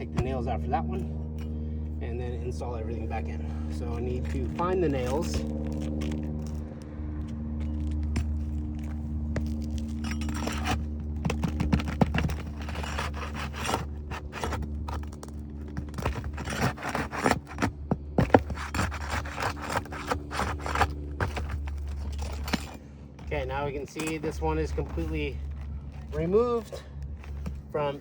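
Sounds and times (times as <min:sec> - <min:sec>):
steady low hum: 0:00.0 - 0:28.0
pry bar scraping shingles: 0:03.4 - 0:06.8, 0:07.6 - 0:28.0.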